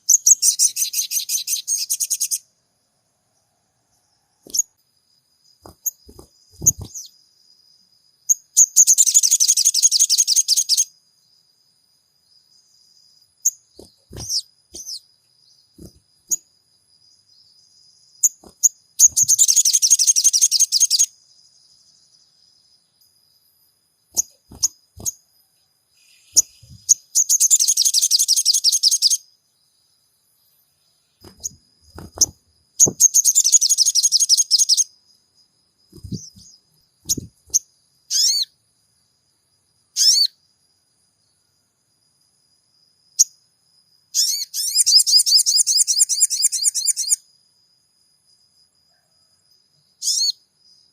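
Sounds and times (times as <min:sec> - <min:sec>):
sunbird trilled chatter: 0:00.0 - 0:02.5, 0:05.4 - 0:07.2, 0:08.3 - 0:10.9, 0:13.4 - 0:16.5, 0:17.3 - 0:21.8, 0:24.1 - 0:25.3, 0:26.0 - 0:29.3, 0:31.0 - 0:34.9, 0:35.9 - 0:38.5, 0:50.0 - 0:50.4
sharp bird chirps: 0:00.0 - 0:02.6, 0:04.0 - 0:04.8, 0:05.4 - 0:11.4, 0:12.2 - 0:23.2, 0:24.1 - 0:29.7, 0:30.4 - 0:38.6, 0:39.8 - 0:40.5, 0:44.1 - 0:47.3, 0:49.2 - 0:50.9.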